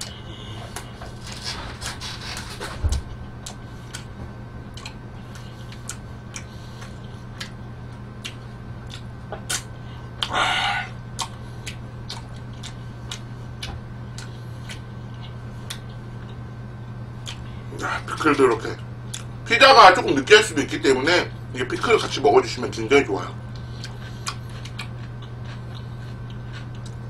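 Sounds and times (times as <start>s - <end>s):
steady low hum: 0.0s - 27.0s
wet chewing clicks: 4.7s - 7.6s, 8.2s - 10.4s, 11.1s - 16.4s, 23.6s - 27.0s.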